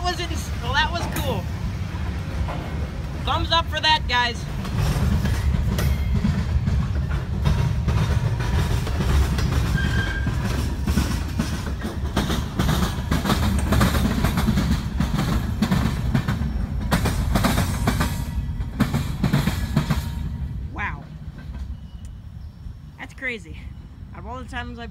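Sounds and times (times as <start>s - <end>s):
train low rumble: 0.0s - 24.9s
wheels clicking and clattering: 4.4s - 20.4s.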